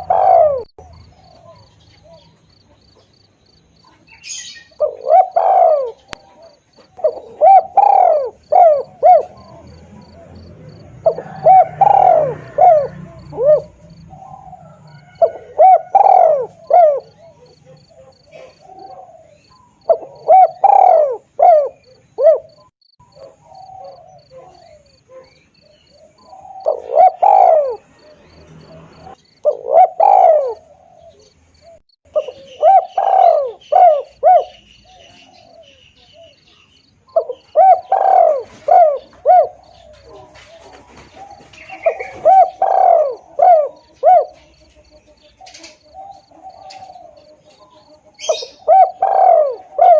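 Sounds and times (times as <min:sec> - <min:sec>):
dove cooing: 0:00.0 - 0:03.1, 0:03.8 - 0:49.9.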